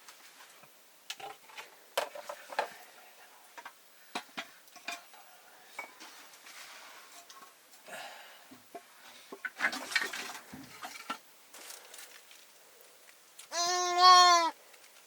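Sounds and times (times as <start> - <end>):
metal utensils clinking on a pot: 4.8 - 5.2.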